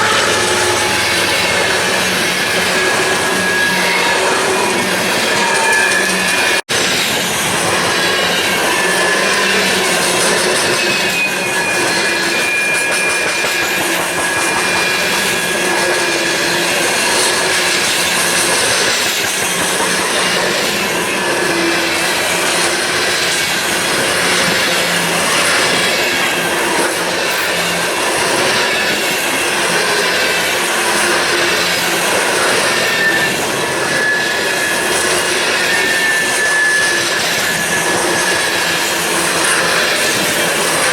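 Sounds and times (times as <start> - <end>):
train wheels clicking over rail joints: 0.0 - 40.9
wheel squeal: 0.0 - 40.9.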